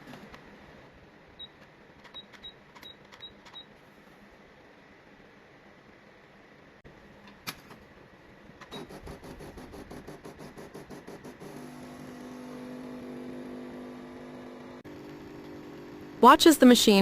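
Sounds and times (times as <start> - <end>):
espresso machine pump pulsing: 8.8 - 17.0.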